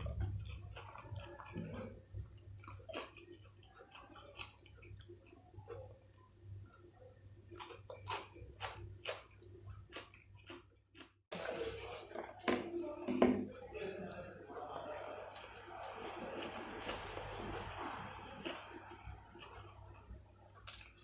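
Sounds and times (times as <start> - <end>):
person chewing with mouth smacks: 0.0 - 11.2, 14.1 - 21.0
faint low hum: 11.4 - 21.0.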